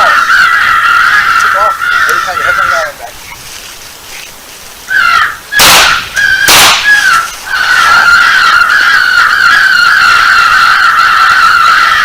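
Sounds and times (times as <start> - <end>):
shotgun shots: 5.6 - 7.1.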